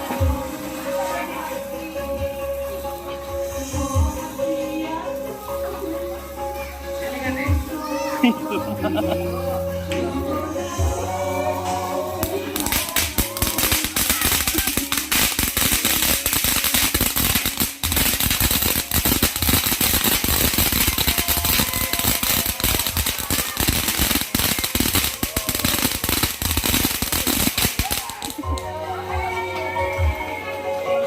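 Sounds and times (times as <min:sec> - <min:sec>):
firework spraying crackling sparks: 0:10.7 - 0:28.7.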